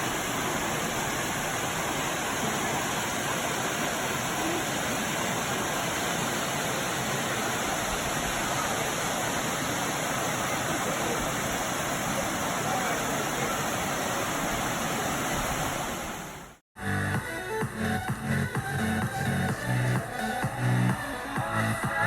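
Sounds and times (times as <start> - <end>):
waterfall roaring: 0.0 - 16.6.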